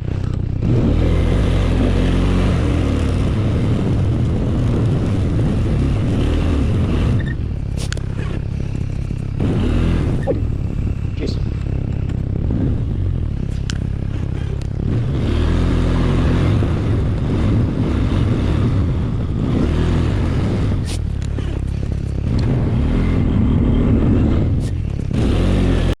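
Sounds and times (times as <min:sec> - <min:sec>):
atv engine revving under load: 0:00.0 - 0:26.0.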